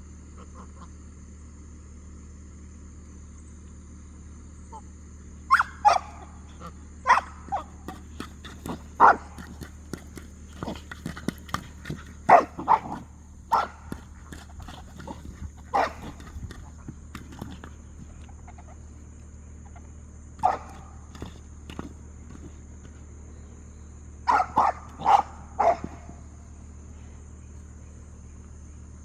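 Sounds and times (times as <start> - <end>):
dog barking: 5.5 - 9.7, 11.6 - 17.7, 20.4 - 22.4, 24.3 - 26.3.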